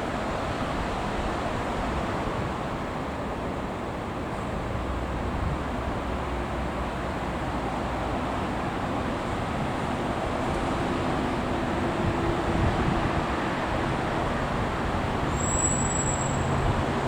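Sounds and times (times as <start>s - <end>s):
electric train rumbling past: 4.2s - 17.0s.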